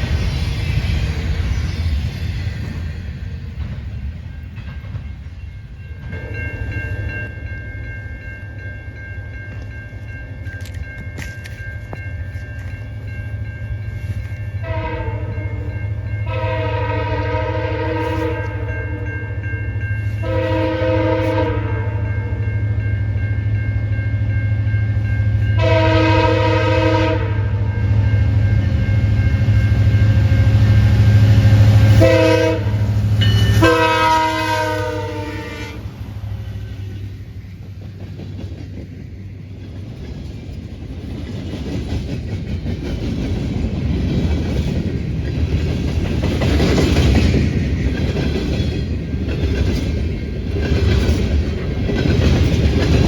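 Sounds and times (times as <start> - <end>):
freight train rumble: 0.0 - 53.0
train air horn blasts: 14.6 - 19.3, 20.2 - 22.4, 25.6 - 28.1, 30.3 - 36.1.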